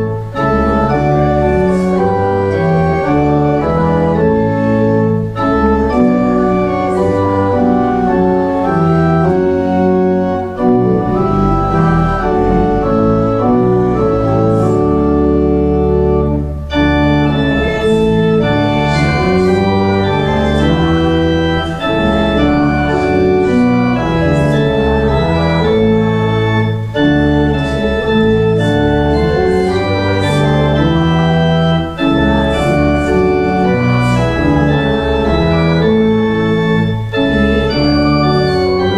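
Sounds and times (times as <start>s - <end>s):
church organ playing a hymn: 0.0s - 38.9s.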